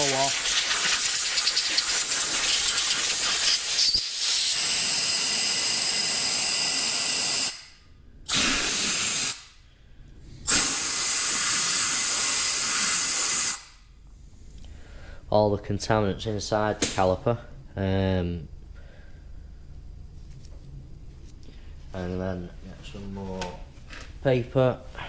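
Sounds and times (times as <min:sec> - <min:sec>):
compressed air blow gun hissing: 0:00.0 - 0:05.0, 0:08.3 - 0:09.6, 0:10.4 - 0:13.7.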